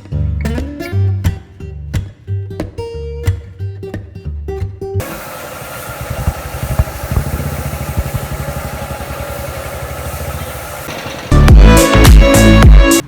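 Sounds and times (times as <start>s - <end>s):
motorcycle engine idling: 5.0s - 11.7s
loud music: 9.7s - 13.0s.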